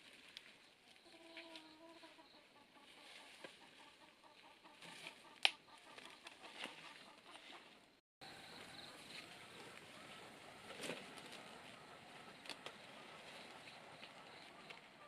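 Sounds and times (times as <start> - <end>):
chicken clucking: 1.0 - 15.0.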